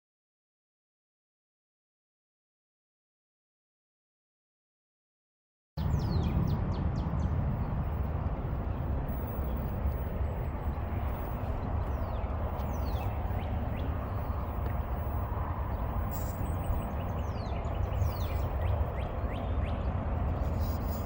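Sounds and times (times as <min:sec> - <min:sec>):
wind buffeting microphone: 0:05.8 - 0:21.0
bird chirps: 0:10.6 - 0:21.0.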